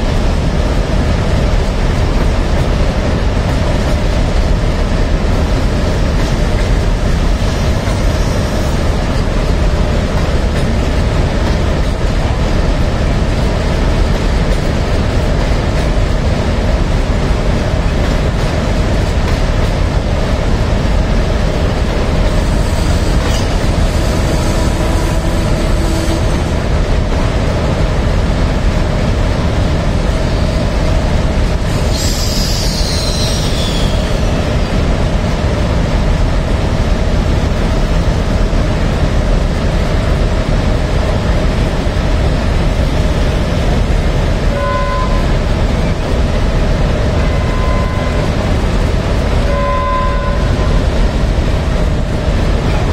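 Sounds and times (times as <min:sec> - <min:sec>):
train wheels rumbling on rails: 0:00.0 - 0:52.9
high wheel squeal: 0:31.8 - 0:34.7, 0:47.2 - 0:48.4.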